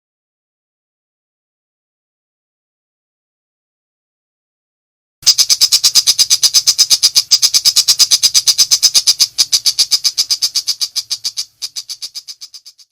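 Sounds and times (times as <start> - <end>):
bird's rapid high-pitched rattle: 5.2 - 12.9.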